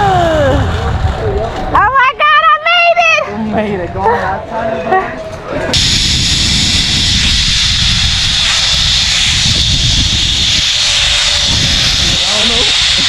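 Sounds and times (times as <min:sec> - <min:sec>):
wind buffeting microphone: 0:00.0 - 0:13.0
zipline pulleys whirring on cable: 0:05.7 - 0:13.0.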